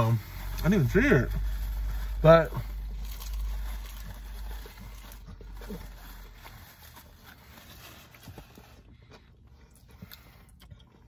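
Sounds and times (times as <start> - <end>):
low background hum: 0.0 - 11.0
chewing and lip smacks: 8.0 - 11.0.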